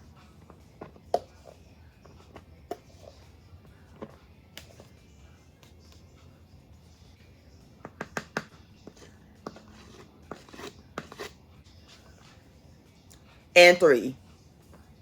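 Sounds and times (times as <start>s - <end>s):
measuring cup knocking in flour: 7.8s - 11.3s
cup scraping flour level: 8.8s - 12.1s.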